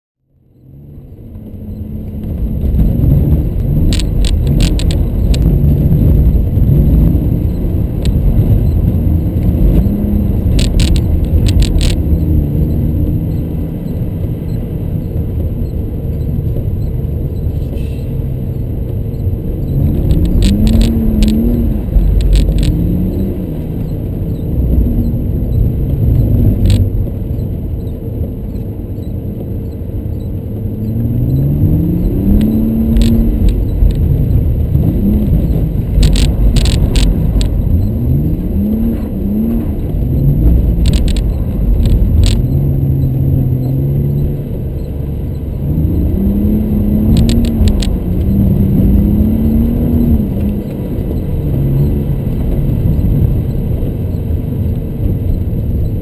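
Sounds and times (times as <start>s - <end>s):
car engine revving: 0.5s - 56.0s
sharp clicking rattles: 2.2s - 5.6s, 7.5s - 14.6s, 19.2s - 30.4s, 31.3s - 46.1s, 47.0s - 49.1s.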